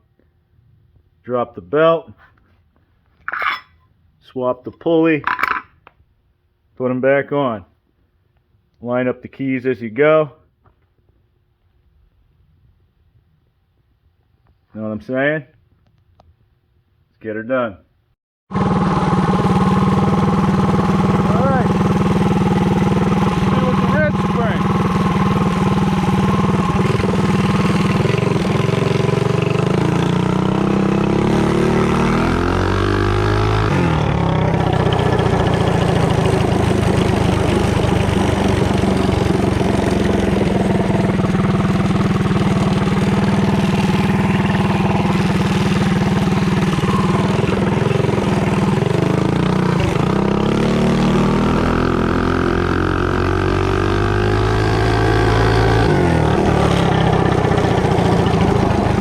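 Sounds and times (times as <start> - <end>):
mini bike engine accelerating: 18.5 - 59.0.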